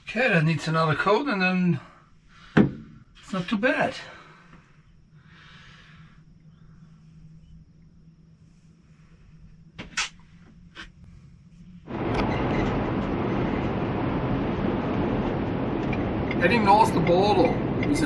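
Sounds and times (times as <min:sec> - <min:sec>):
low steady hum: 0:00.0 - 0:18.0
vehicle road and engine noise: 0:11.8 - 0:18.0.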